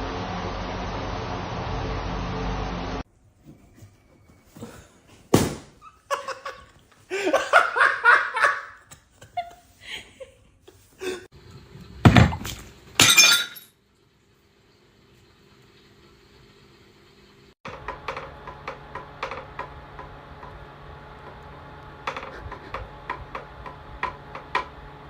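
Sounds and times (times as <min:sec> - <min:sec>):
loud thud: 0:05.3 - 0:05.8
person laughing: 0:05.8 - 0:11.3, 0:22.1 - 0:22.9.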